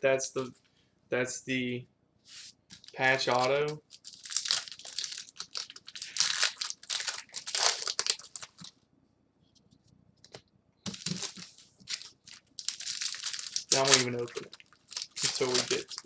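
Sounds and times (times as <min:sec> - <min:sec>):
card pack wrappers crinkling: 0:02.8 - 0:08.7, 0:10.9 - 0:16.0.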